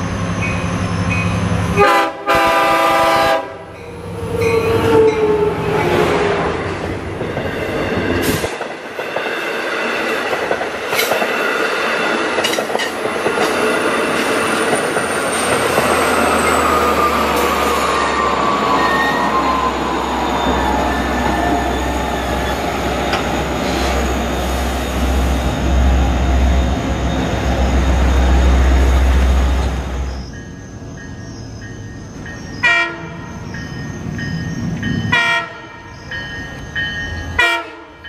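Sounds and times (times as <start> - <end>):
wheels squealing on rail: 0.0 - 8.6, 12.3 - 37.6
train horn: 1.8 - 3.8, 32.6 - 33.2, 35.1 - 35.9, 37.4 - 38.0.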